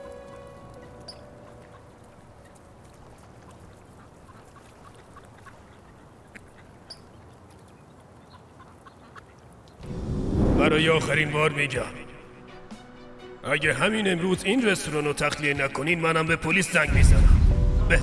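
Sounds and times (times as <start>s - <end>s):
music: 0.0s - 3.0s, 9.8s - 18.0s
bird calls: 0.0s - 9.5s.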